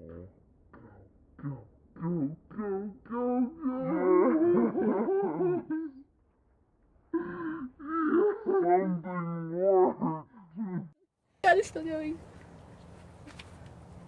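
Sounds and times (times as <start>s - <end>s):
voices wailing and humming: 0.0s - 6.0s.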